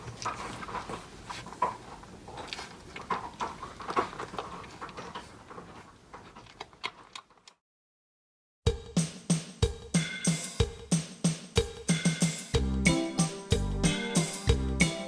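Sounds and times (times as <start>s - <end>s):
puppies scrabbling and scratching: 0.0s - 7.6s.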